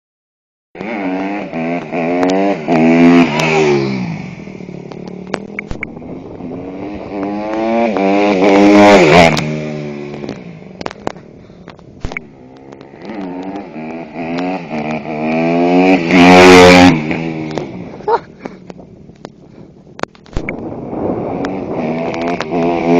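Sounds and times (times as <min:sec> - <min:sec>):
motocross bike engine revving: 0:00.8 - 0:10.5, 0:12.0 - 0:18.0, 0:20.9 - 0:22.9.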